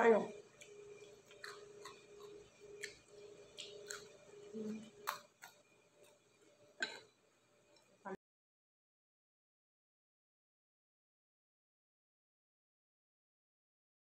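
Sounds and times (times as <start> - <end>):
mouth clicks and smacks chewing: 0.6 - 6.2.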